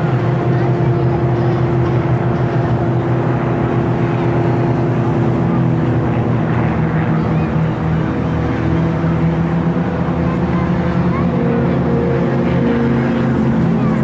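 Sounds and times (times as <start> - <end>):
propeller aircraft engine drone: 0.0 - 14.0.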